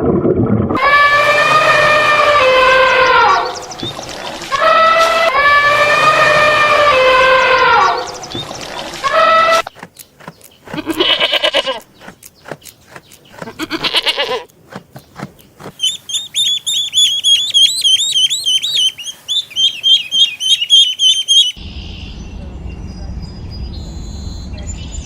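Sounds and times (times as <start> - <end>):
low rumbling noise: 0.0 - 9.1, 21.6 - 25.0
goat bleating: 10.7 - 11.9, 13.4 - 14.5.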